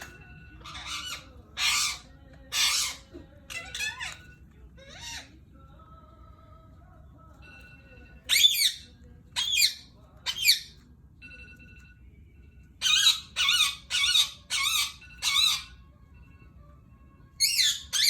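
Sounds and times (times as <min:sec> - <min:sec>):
parrot squawking: 0:00.0 - 0:05.5, 0:08.2 - 0:10.8, 0:12.8 - 0:15.9, 0:17.4 - 0:18.0.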